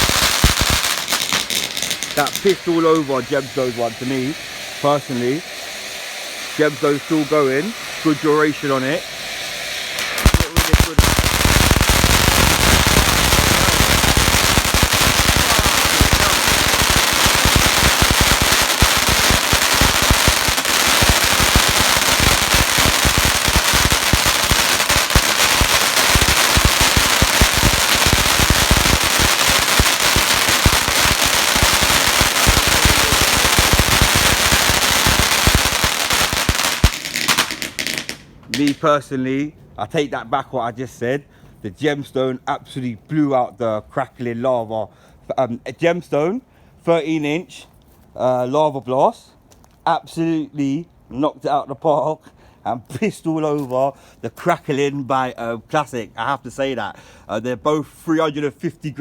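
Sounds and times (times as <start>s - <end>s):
firework fountain crackling: 0.0s - 38.9s.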